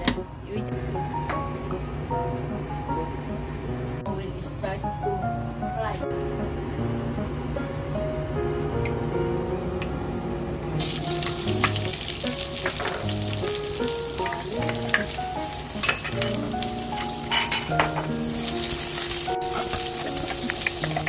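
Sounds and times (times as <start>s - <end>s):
background music: 0.0s - 21.0s
onion and garlic sizzling in oil: 10.8s - 21.0s.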